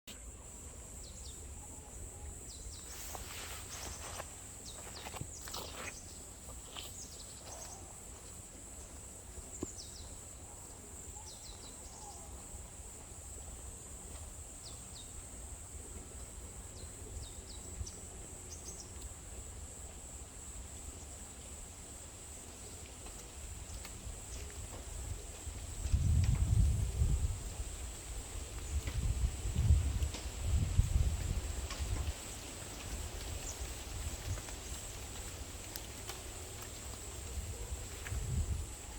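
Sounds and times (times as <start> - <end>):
small birds chirping: 0.1 - 12.7, 32.2 - 38.4.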